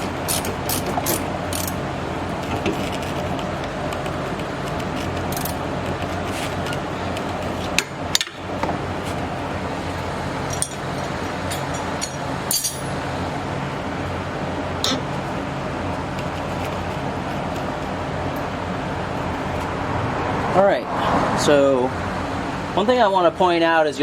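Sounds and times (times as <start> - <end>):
shop fan running: 0.0 - 24.0
metallic clinks of hand tools: 10.5 - 13.0.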